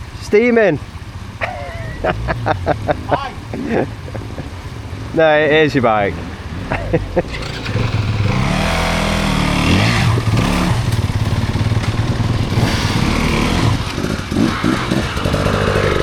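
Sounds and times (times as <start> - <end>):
dirt bike engine revving: 6.7 - 16.0.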